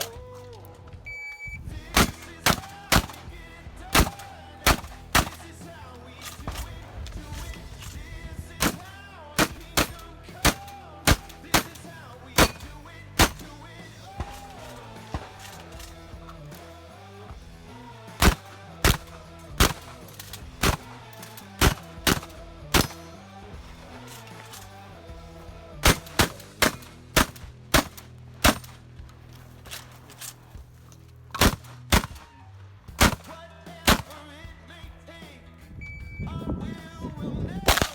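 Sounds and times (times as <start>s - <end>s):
background music: 0.0s - 37.9s
shotgun shots: 1.8s - 16.7s, 18.2s - 23.4s, 25.8s - 28.9s, 31.4s - 34.4s, 37.6s - 37.9s.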